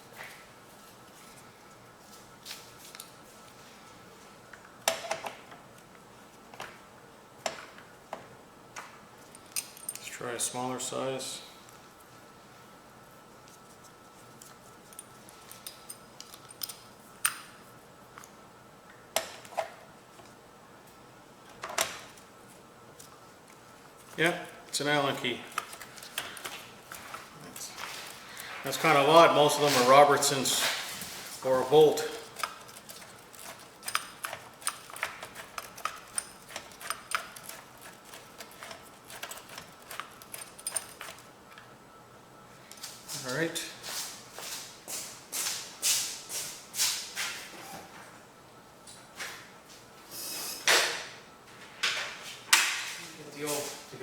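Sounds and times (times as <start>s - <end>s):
allen keys clinking: 9.2s - 10.1s, 14.3s - 17.5s, 24.1s - 30.9s, 31.5s - 41.7s.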